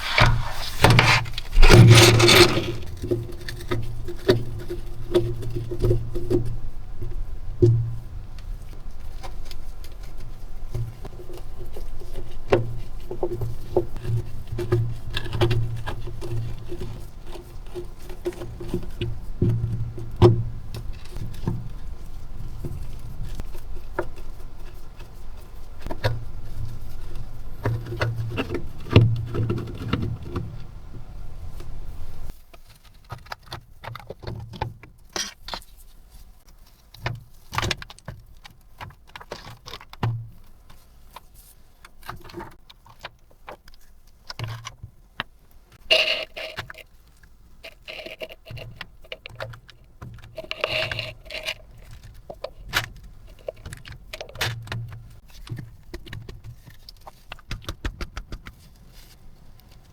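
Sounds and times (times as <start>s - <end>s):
scrubbing a keyboard: 0.0s - 5.9s.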